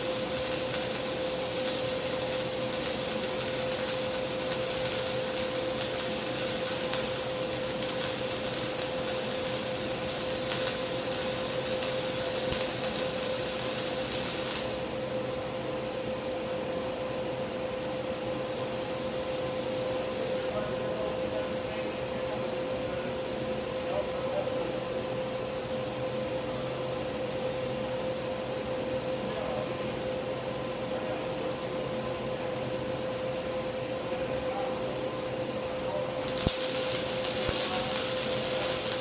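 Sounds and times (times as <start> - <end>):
machine hum with pitched tone: 34.8 - 39.0
high hiss: 36.2 - 39.0.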